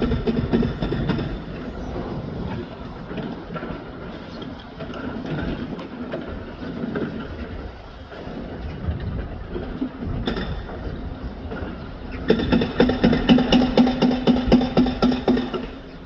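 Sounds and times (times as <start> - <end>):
demolition machinery rumbling: 0.0 - 16.0
metal clanks and knocks: 11.5 - 15.9.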